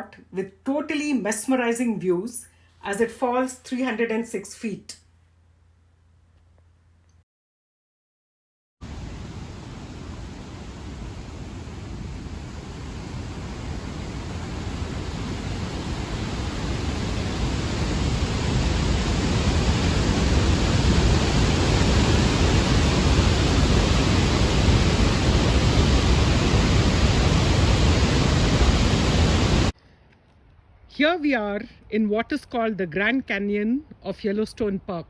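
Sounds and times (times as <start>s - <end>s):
waterfall rushing: 8.9s - 29.7s.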